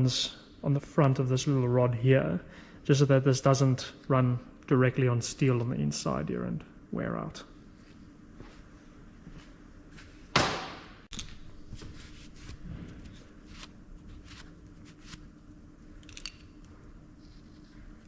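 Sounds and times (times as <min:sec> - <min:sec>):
tools and parts clicking: 0:16.0 - 0:16.7.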